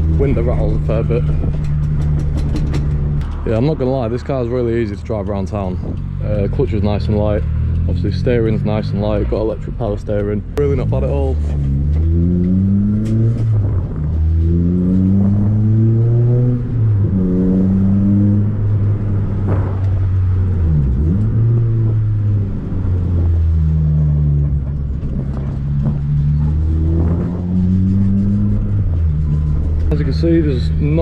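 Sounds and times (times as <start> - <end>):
car engine accelerating through gears: 5.8 - 31.0.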